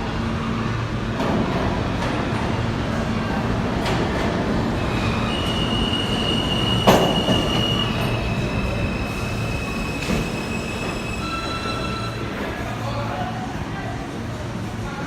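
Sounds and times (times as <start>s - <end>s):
subway train rumble: 0.0s - 15.0s
train wheels squealing: 4.8s - 12.5s.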